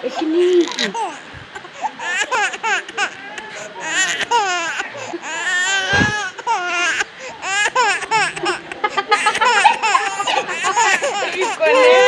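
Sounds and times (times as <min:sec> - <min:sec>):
baby laughing and fussing: 0:00.0 - 0:12.0
low thump: 0:05.9 - 0:06.2.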